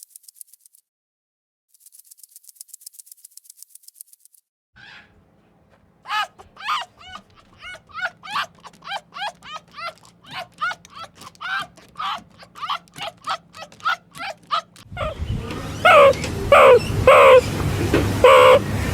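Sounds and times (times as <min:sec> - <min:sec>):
animal high calls: 0:04.8 - 0:05.2, 0:06.1 - 0:18.7.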